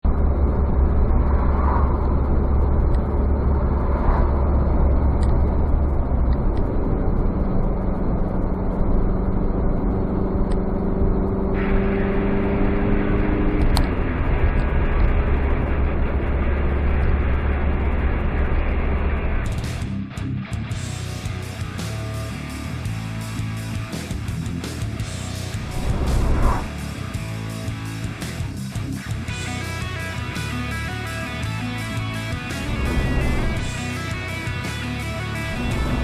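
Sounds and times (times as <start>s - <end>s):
droning hum: 0.0s - 19.6s, 25.4s - 26.9s, 31.4s - 36.0s
car engine and tyre rumble: 0.0s - 36.0s.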